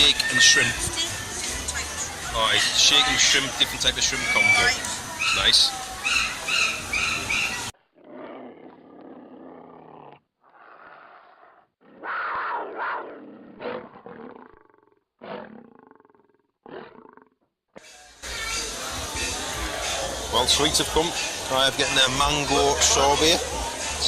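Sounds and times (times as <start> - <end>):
animal roars and growls: 6.3 - 17.4.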